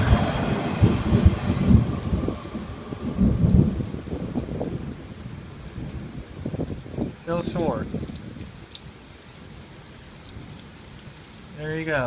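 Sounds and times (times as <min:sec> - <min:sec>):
low rumbling: 0:00.0 - 0:06.0
steady rain falling: 0:00.0 - 0:12.0.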